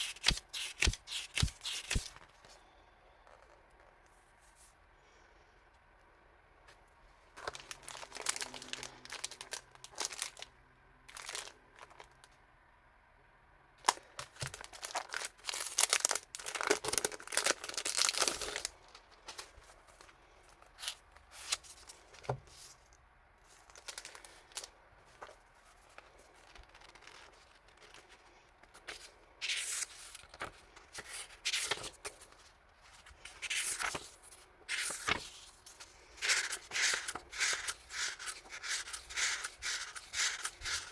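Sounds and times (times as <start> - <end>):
packaging rustling and tearing: 7.4 - 10.5, 11.1 - 12.1, 13.8 - 20.1, 23.6 - 28.2.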